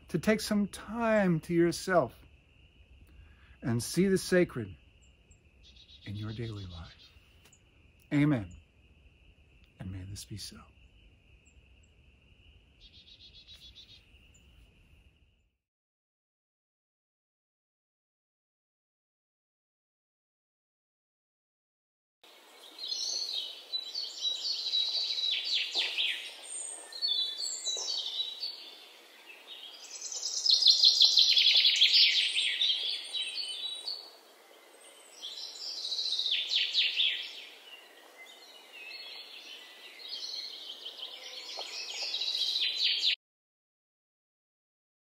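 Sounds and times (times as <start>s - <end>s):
songbirds trilling: 0.0s - 15.4s, 22.3s - 43.2s.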